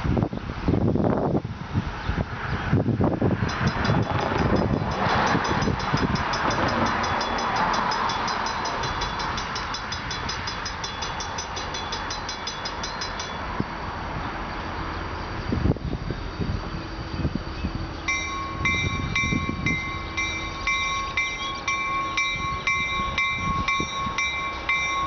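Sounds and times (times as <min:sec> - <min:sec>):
freight train rumbling past: 0:00.0 - 0:25.0
bell ringing rapidly: 0:03.5 - 0:13.6, 0:18.1 - 0:25.0.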